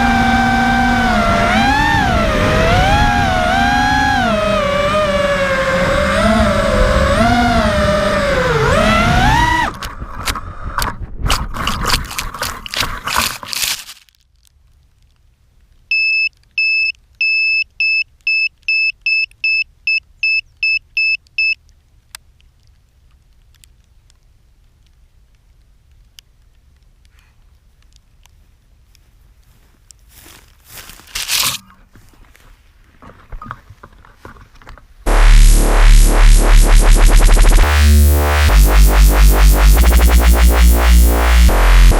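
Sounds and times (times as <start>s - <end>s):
quadcopter motors whining: 0.0s - 10.4s
high beeps from beeper: 15.9s - 21.6s.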